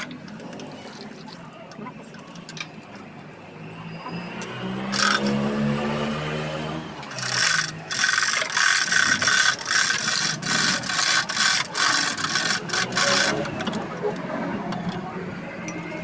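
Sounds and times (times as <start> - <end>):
ratchet clicking: 4.4 - 6.0, 7.1 - 14.2.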